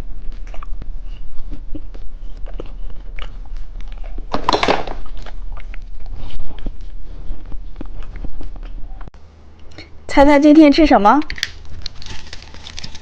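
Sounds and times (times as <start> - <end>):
packaging rustle: 11.3 - 13.0.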